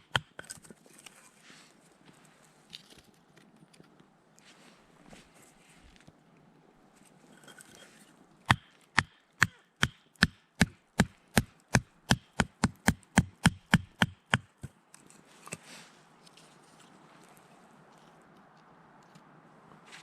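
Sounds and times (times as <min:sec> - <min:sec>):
blade chopping wood: 0:08.5 - 0:14.8.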